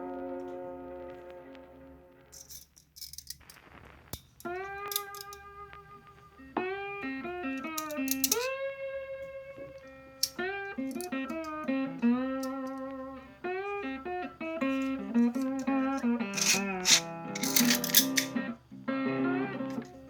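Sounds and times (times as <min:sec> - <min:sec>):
plucked guitar notes: 0:04.5 - 0:17.5.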